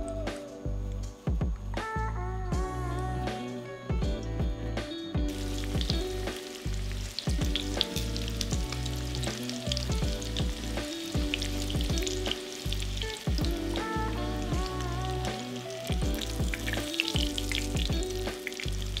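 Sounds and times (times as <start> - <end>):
background music: 0.0 - 19.0
oil sizzling and crackling: 5.2 - 19.0.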